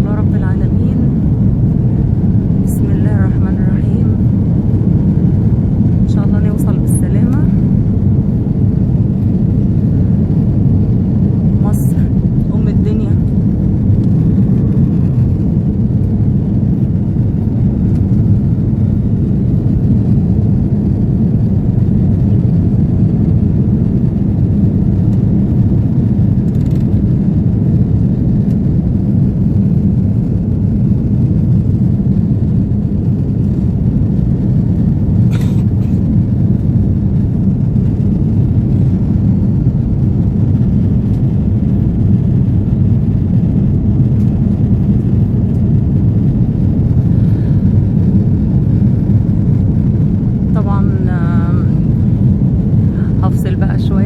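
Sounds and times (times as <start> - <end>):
jet engines rumbling in cabin: 0.0 - 54.0
rushing air: 46.4 - 50.5, 51.1 - 53.3.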